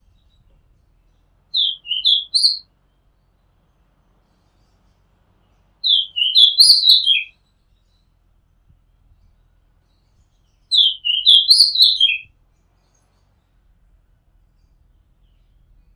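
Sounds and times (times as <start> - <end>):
bird singing whistled notes: 1.6 - 2.6, 5.8 - 7.3, 10.7 - 12.3.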